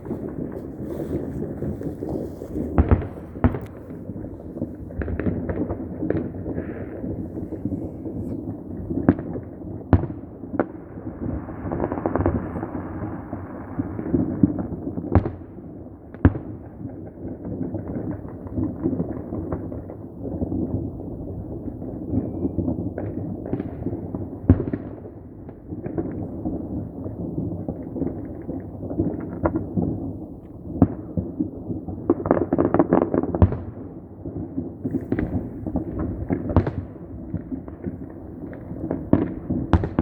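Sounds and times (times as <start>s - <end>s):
sharp firecracker bangs: 0.0s - 9.3s, 34.8s - 40.0s
fireworks crackling and rumbling: 0.0s - 40.0s.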